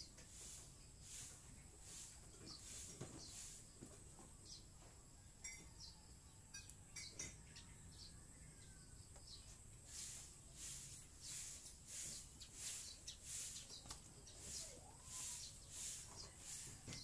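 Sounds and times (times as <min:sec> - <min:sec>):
steady high hiss: 0:00.0 - 0:03.8, 0:09.8 - 0:17.0
short bird chirps: 0:10.8 - 0:16.7.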